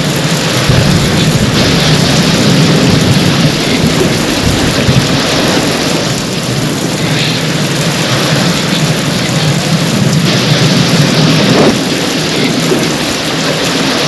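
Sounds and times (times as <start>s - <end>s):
continuous low rumble: 0.0s - 14.0s
heavy rain pouring: 0.0s - 14.0s.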